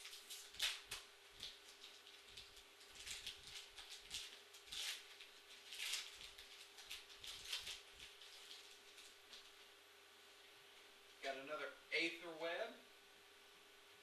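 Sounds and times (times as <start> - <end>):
wrapper and cards rustling: 0.0 - 9.6
steady low hum: 0.0 - 14.0.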